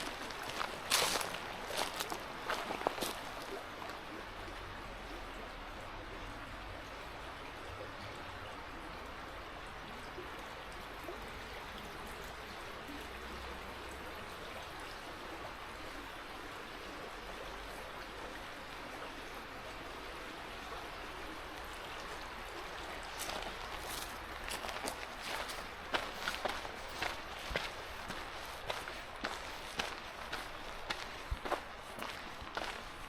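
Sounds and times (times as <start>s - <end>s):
footsteps on path: 0.0s - 3.6s, 23.1s - 33.0s
river water running: 0.0s - 33.0s.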